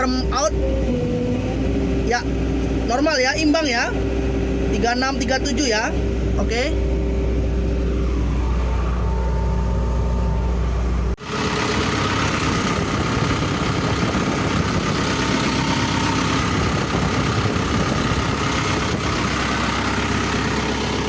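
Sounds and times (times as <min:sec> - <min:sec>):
diesel engine humming: 0:00.0 - 0:21.0
rough engine noise: 0:00.0 - 0:21.0.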